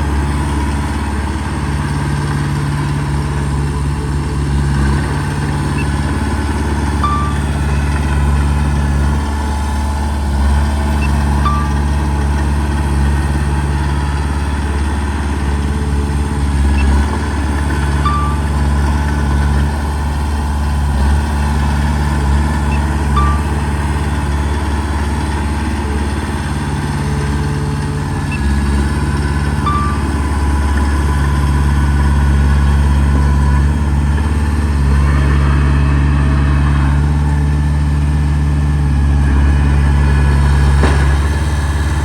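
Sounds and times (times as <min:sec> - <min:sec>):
heavy diesel engine drone: 0:00.0 - 0:42.0
brief knock: 0:40.8 - 0:41.4.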